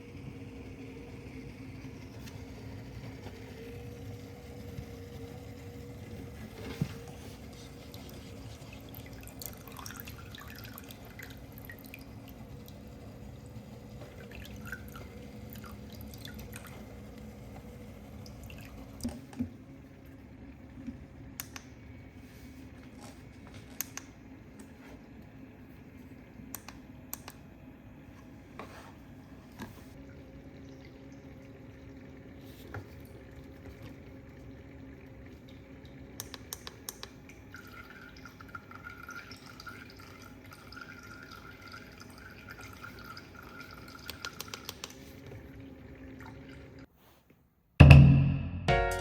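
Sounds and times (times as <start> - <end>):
water dripping and trickling: 2.6 - 19.3, 29.9 - 46.9
music with drums: 47.8 - 49.0.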